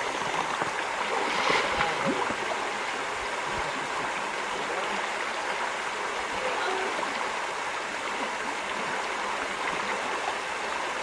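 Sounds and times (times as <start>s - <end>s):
water splash: 0.0s - 2.8s
river water flowing: 0.0s - 11.0s.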